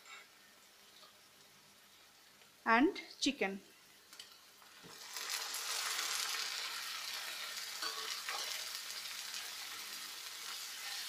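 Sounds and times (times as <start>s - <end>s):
chicken sizzling in hot oil: 3.7s - 11.0s.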